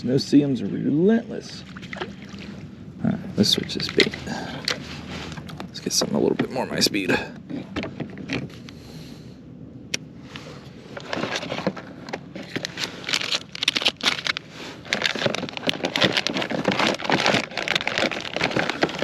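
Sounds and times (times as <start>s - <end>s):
crackles and clicks: 1.5s - 8.8s, 9.9s - 19.0s
plastic crinkling and rustling: 10.9s - 19.0s.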